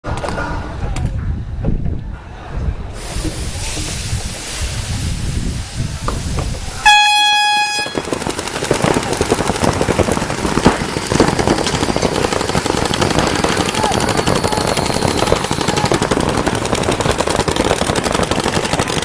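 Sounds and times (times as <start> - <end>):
noisy background: 0.0 - 19.0
horn high tone: 6.8 - 8.1
rapid clattering: 7.9 - 19.0.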